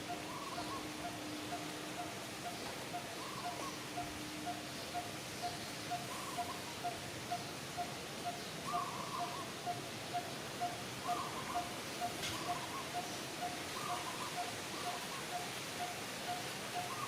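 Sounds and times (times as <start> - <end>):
constant hiss: 0.0 - 17.0
short wavering bird calls: 0.0 - 17.0.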